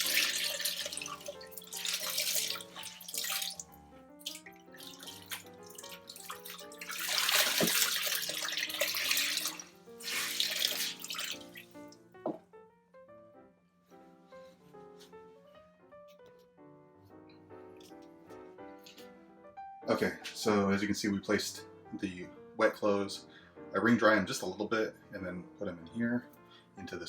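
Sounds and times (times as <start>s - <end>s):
running water bursts: 0.0s - 3.7s, 4.3s - 11.9s
background music stepped notes: 17.1s - 23.2s.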